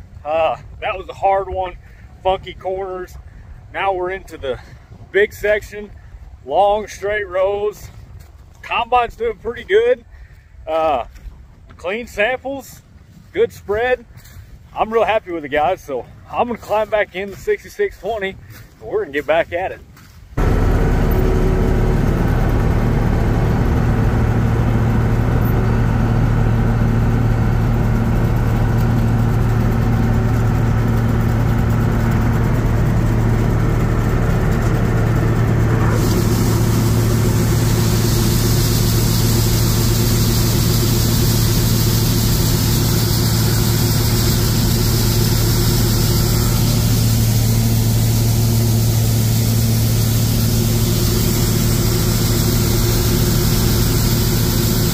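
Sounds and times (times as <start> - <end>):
combine engine hum: 14.1 - 54.9
bright hiss: 35.9 - 54.9.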